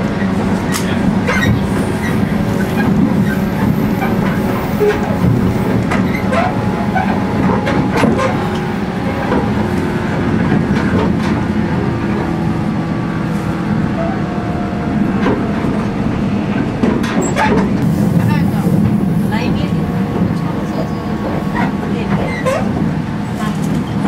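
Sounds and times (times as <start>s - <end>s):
train interior rumble: 0.0s - 24.0s
traction motor hum: 1.7s - 16.9s.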